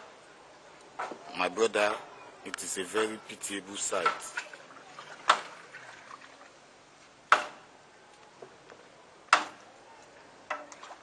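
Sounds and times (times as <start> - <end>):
faint steady hiss: 0.0 - 11.0
water splashes: 2.5 - 7.6, 10.4 - 11.0.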